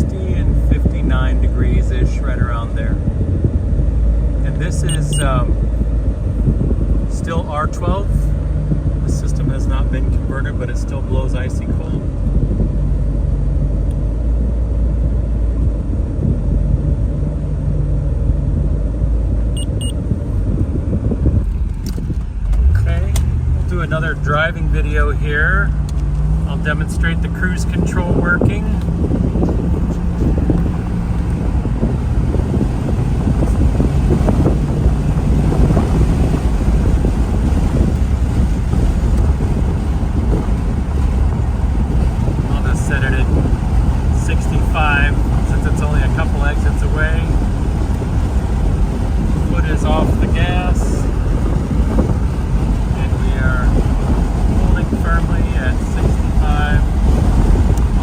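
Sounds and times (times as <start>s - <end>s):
car engine rumble inside cabin: 0.0s - 58.0s
short high beeps: 4.9s - 5.3s, 19.6s - 20.0s.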